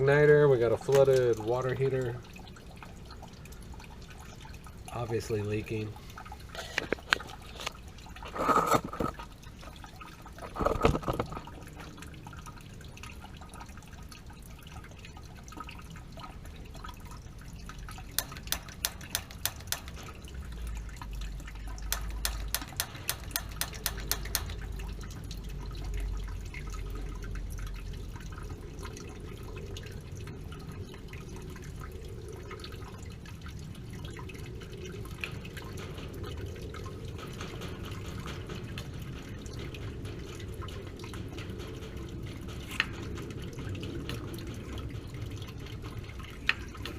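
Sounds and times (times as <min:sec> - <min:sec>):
water dripping and trickling: 0:00.0 - 0:46.9
rapid clicks: 0:18.1 - 0:20.7, 0:21.7 - 0:25.2.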